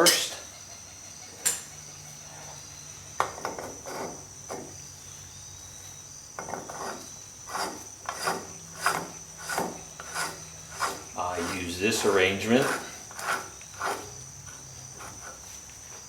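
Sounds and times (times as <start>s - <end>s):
metal tool scraping: 3.5s - 4.3s, 6.4s - 15.6s.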